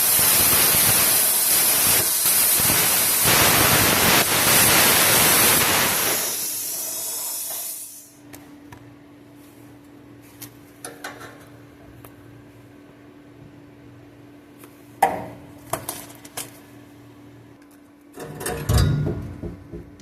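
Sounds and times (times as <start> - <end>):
plasma cutter hissing: 0.0 - 8.2.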